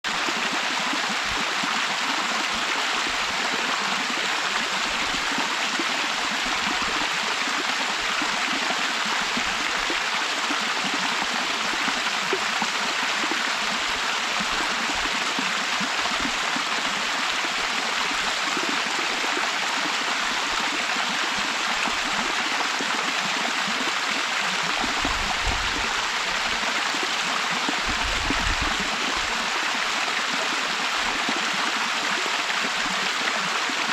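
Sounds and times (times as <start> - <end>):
waterfall rushing: 23.7 - 32.8.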